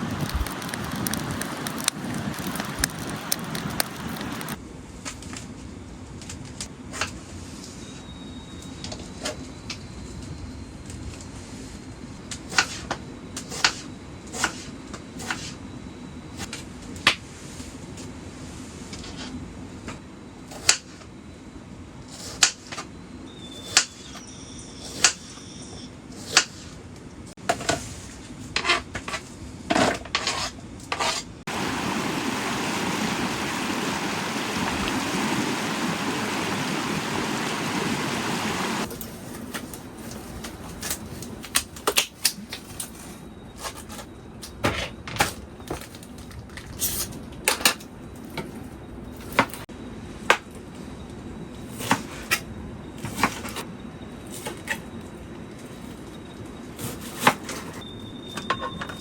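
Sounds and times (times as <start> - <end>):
steady hiss: 0.0 - 4.6, 31.5 - 38.9.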